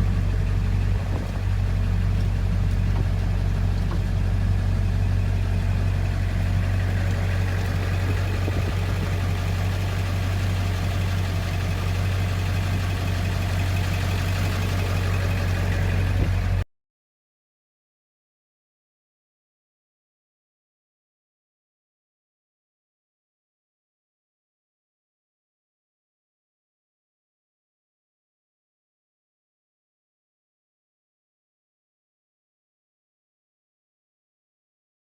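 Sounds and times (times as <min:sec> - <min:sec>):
diesel engine idling: 0:00.0 - 0:16.6.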